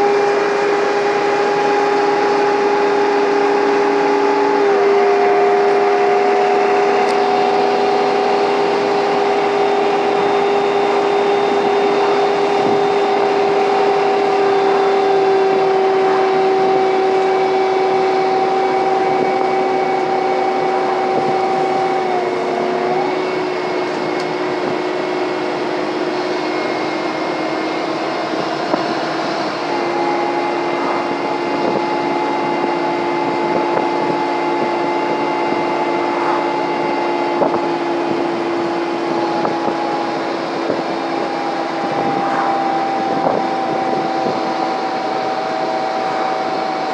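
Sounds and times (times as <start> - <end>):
bus engine whine and thrash: 0.0 - 46.9.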